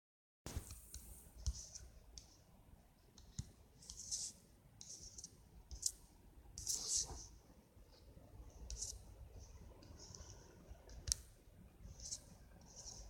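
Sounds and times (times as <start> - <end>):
drawing tool scratching: 3.8 - 6.0, 6.6 - 7.3, 8.7 - 9.0, 11.8 - 13.0.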